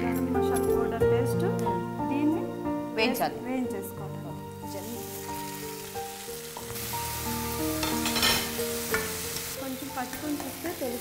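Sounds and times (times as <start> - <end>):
soft background music: 0.0 - 11.0
paste sizzling in hot oil: 4.7 - 11.0.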